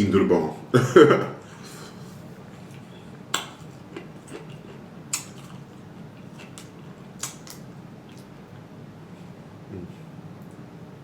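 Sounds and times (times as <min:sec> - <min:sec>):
low steady hum: 0:00.0 - 0:11.0
chewing mouth smacks: 0:02.6 - 0:08.7.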